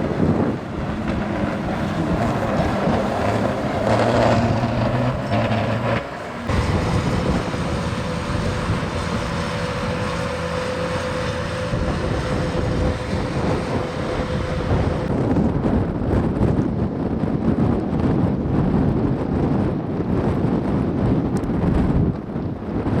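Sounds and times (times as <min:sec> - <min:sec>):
vehicle engines running: 0:00.0 - 0:16.4
road and wind noise: 0:00.0 - 0:23.0.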